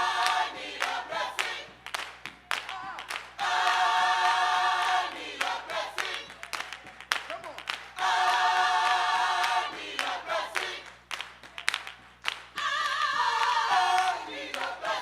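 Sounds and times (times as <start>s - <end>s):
gospel choir singing: 0.0s - 2.1s, 3.3s - 6.5s, 7.9s - 11.0s, 12.5s - 15.0s.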